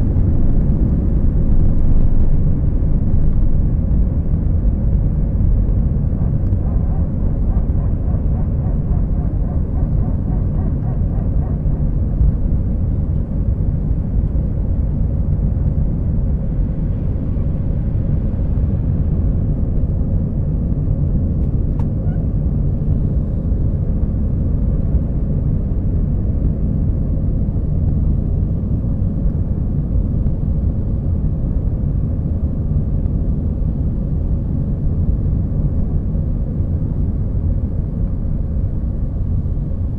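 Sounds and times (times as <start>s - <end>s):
jet engines roaring: 0.0s - 15.2s.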